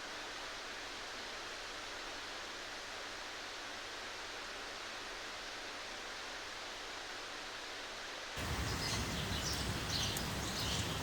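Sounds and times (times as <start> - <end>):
birds chirping: 8.4 - 11.0
rain hissing: 8.4 - 11.0.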